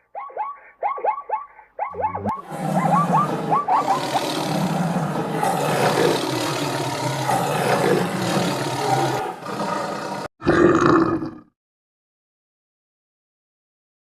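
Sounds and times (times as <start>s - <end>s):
animal growling roar: 2.2s - 11.5s.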